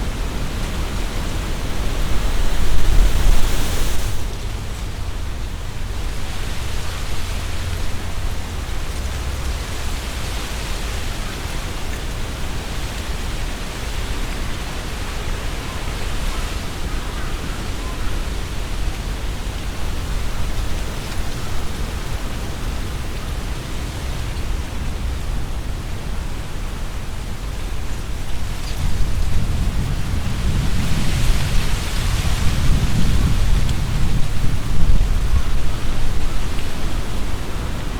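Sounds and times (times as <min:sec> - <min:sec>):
wind buffeting microphone: 0:00.0 - 0:10.0, 0:27.4 - 0:37.9
leaves rustling in wind: 0:00.0 - 0:37.9.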